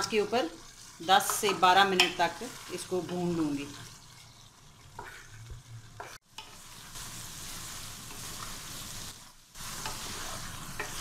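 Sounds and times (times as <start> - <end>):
food sizzling in a pot: 0.0 - 11.0
wooden spoon scraping a pot: 3.0 - 6.9, 9.6 - 11.0.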